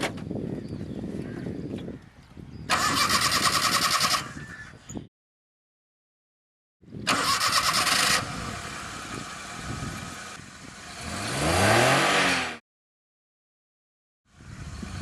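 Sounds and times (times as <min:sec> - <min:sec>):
car engine starting and revving: 0:07.1 - 0:12.6.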